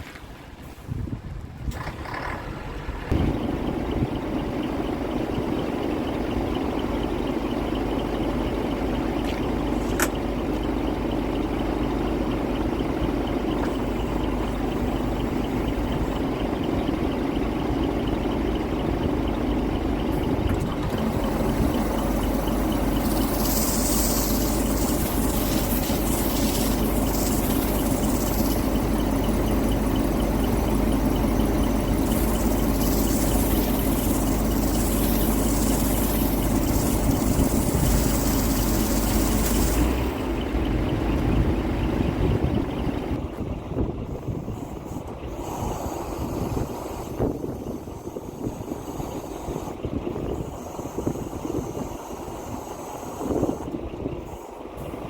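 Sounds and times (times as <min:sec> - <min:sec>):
motor droning: 0:01.8 - 0:55.0
rushing hiss: 0:50.4 - 0:53.7.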